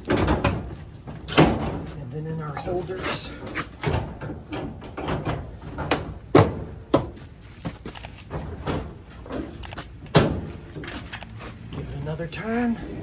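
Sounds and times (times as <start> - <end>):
metal and plastic parts clunking: 0.0 - 11.9
loud knocks: 3.8 - 7.2.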